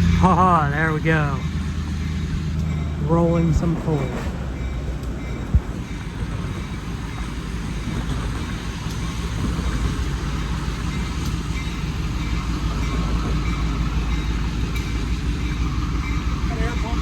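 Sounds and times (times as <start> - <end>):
diesel locomotive rumble: 0.0 - 17.0.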